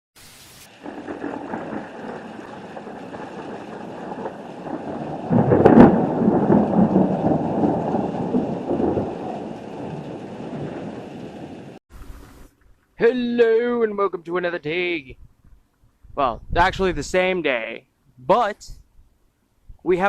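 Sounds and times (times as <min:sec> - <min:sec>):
thunder rumbling and cracking: 0:00.7 - 0:11.8.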